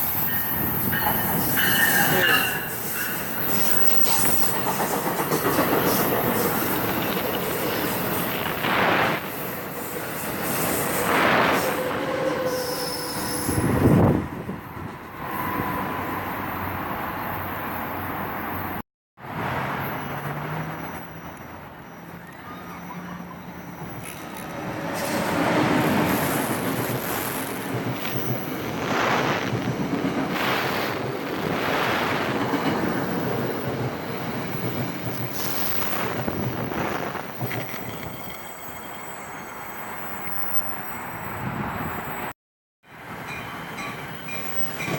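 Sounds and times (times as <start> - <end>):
train wheels rumbling on rail: 0.0 - 16.2, 22.8 - 38.9, 43.0 - 44.9
high-pitched wheel squeals: 11.7 - 13.8
wind buffeting microphone: 13.4 - 15.7, 24.5 - 38.4.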